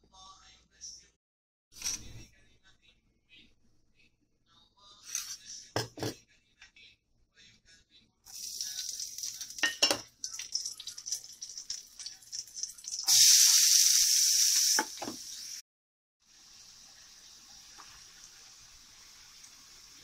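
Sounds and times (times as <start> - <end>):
oil sizzling in pan: 8.3 - 15.6, 16.2 - 20.0.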